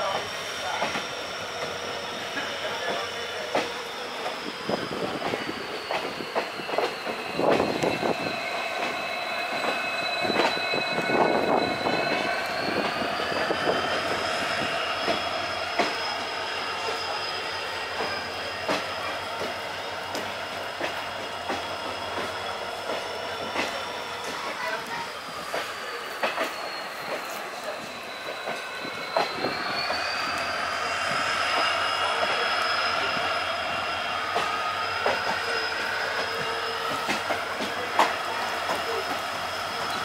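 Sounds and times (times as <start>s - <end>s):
high-pitched squeal: 0.0s - 40.0s.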